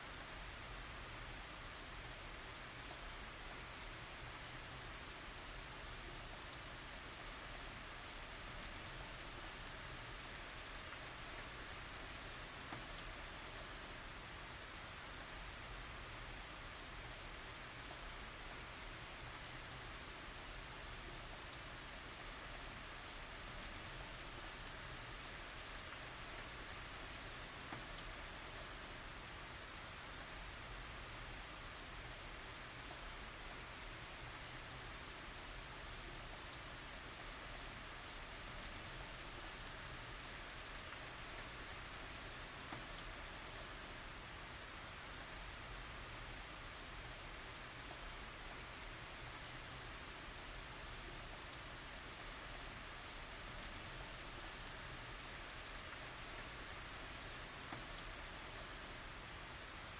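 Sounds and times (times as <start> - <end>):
rain hiss and patter: 0.0 - 59.9.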